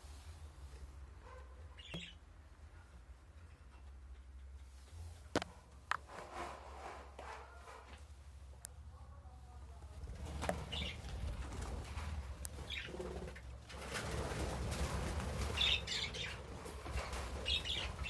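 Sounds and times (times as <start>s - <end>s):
birds flapping wings: 10.0s - 18.0s.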